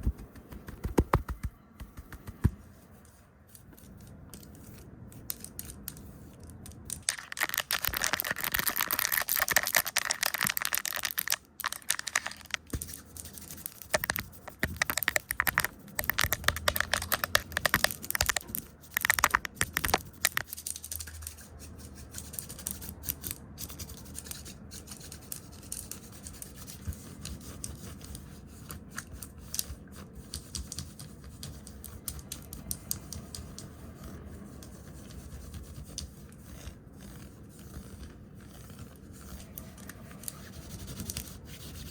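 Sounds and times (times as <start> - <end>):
rapid scratchy brushing: 0.0 - 22.9, 23.6 - 41.9
crackly taps and scratches: 0.0 - 41.9
scattered clicks: 5.3 - 21.4.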